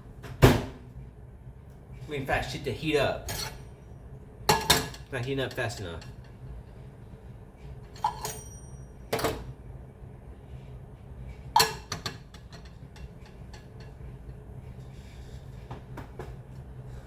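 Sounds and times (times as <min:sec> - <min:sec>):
microwave oven humming: 0:00.0 - 0:17.0
high ringing clink: 0:08.0 - 0:09.0.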